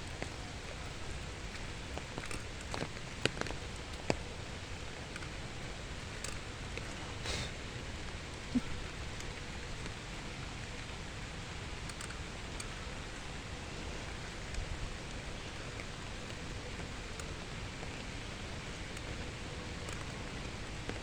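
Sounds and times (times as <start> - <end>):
faint ticks: 0.0 - 7.5, 10.6 - 21.0.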